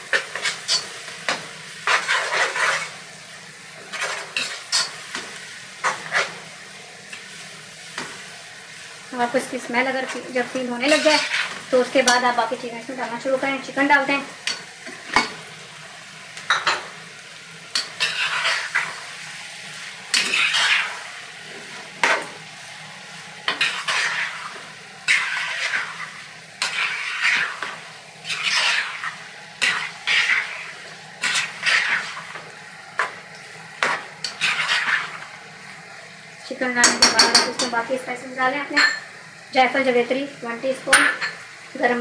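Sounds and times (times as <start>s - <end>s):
wooden spoon scraping a pan: 0.0s - 3.0s, 3.8s - 6.5s, 9.9s - 12.4s, 17.7s - 19.0s, 20.1s - 22.4s, 23.5s - 33.2s, 33.8s - 35.3s
food sizzling in a pan: 0.0s - 42.0s.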